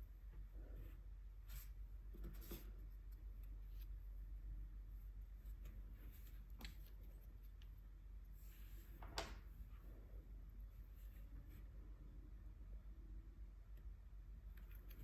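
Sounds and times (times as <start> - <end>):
low steady hum: 0.0 - 15.0
soft rustle: 0.1 - 11.9.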